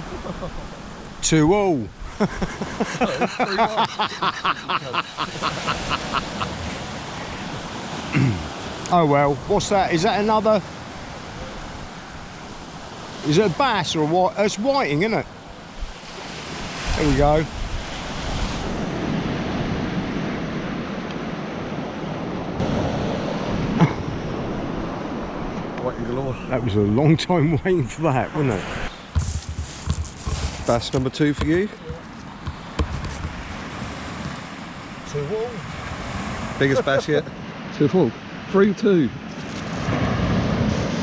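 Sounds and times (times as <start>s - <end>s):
man laughing: 0.0s - 1.0s, 2.1s - 7.4s, 23.8s - 24.2s, 36.6s - 37.2s
surf washing: 0.0s - 41.0s
wind on microphone: 15.7s - 26.6s, 27.7s - 35.0s, 39.2s - 41.0s.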